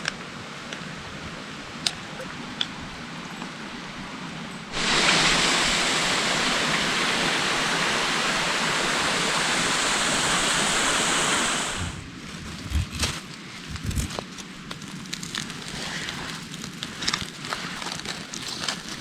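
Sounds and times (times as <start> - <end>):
waterfall rushing: 4.7 - 12.0
campfire crackling and popping: 11.7 - 19.0.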